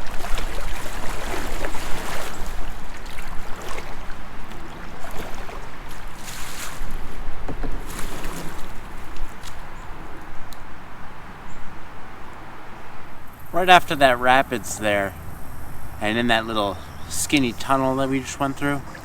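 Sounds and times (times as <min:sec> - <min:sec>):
kayak splashing through rapids: 0:00.0 - 0:10.5
rushing creek water: 0:00.0 - 0:19.0.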